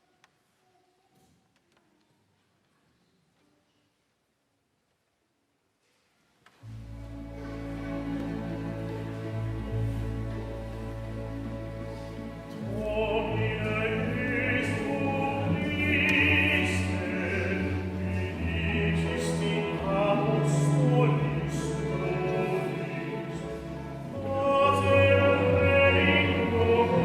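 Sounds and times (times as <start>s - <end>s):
chamber orchestra playing: 6.7s - 27.0s
operatic voice singing with vibrato: 12.7s - 27.0s.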